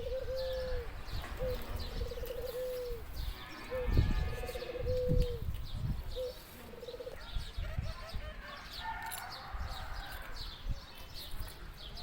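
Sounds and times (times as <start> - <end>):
dove cooing: 0.0 - 3.1, 3.7 - 5.5, 6.1 - 7.9
small birds chirping: 0.0 - 12.0.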